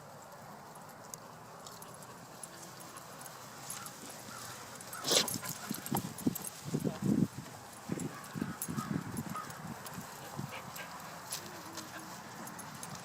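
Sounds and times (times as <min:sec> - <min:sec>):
puppies grunting and squeaking: 0:01.8 - 0:06.6.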